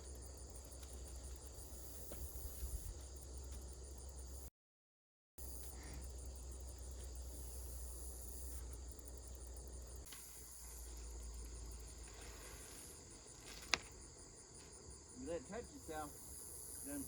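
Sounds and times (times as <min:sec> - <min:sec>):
insects chirring: 0:00.0 - 0:04.5, 0:05.4 - 0:17.0.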